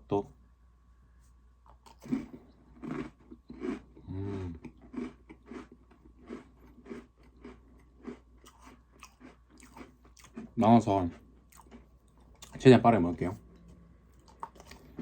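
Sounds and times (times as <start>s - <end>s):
crunchy chewing of cookies: 1.6s - 15.0s
person humming: 4.0s - 4.6s.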